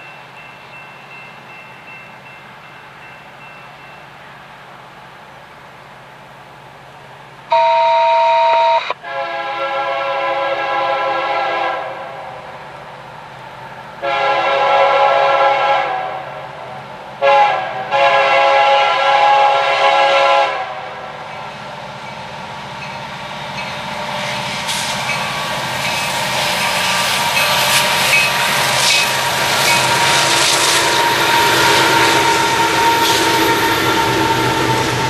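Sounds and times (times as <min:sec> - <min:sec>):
locomotive air horn blasts: 0:07.5 - 0:12.4, 0:14.0 - 0:16.5, 0:17.2 - 0:21.1, 0:26.9 - 0:35.0
approaching train rumble: 0:08.9 - 0:35.0.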